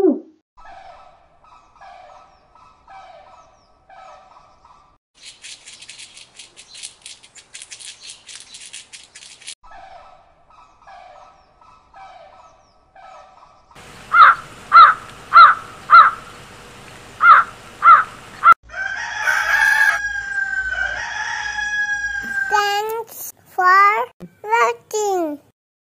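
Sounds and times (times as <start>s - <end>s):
crow cawing: 13.8s - 18.6s
flamingos honking: 13.8s - 18.6s
rooster crowing: 13.8s - 22.7s.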